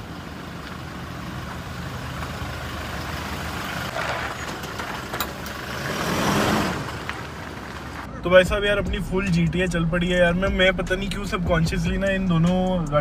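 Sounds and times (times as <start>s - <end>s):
vehicle engine running: 0.0s - 12.9s.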